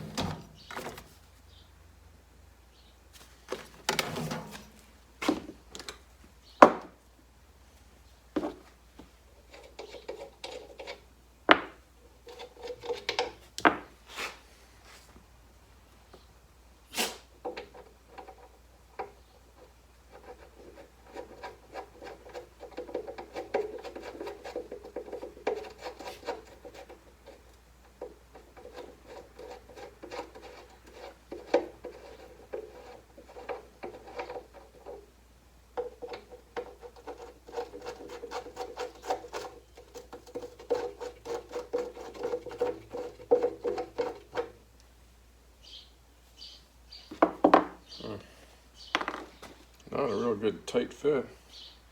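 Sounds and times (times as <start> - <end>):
parts rubbing and scraping: 0.0 - 1.4, 3.2 - 5.9, 8.4 - 14.5, 17.1 - 44.7, 48.9 - 50.4.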